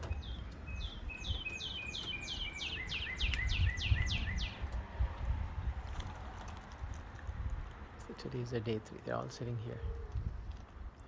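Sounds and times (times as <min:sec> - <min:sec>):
songbird singing: 0:00.0 - 0:05.2.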